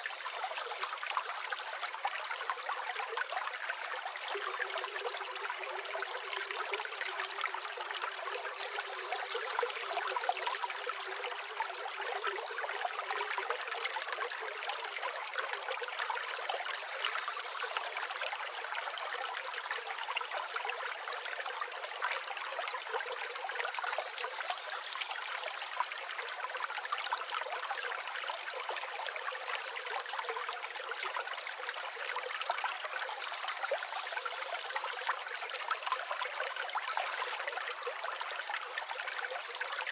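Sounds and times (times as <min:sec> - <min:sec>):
river flowing: 0:33.4 - 0:39.9.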